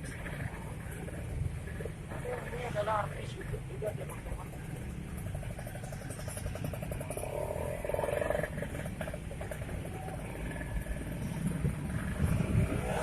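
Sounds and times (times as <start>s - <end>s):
traffic noise: 0.0s - 13.0s
wind rumble on microphone: 11.2s - 13.0s.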